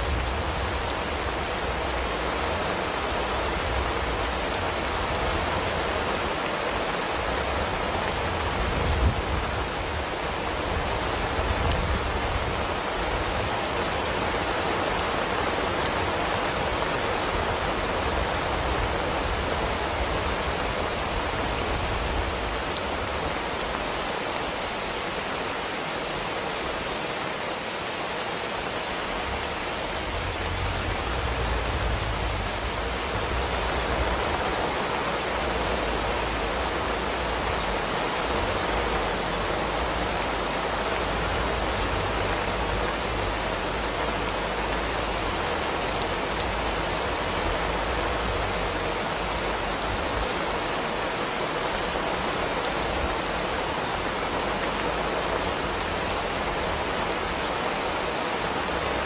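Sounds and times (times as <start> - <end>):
rain falling: 0.0 - 59.0
low rumble: 29.7 - 34.4.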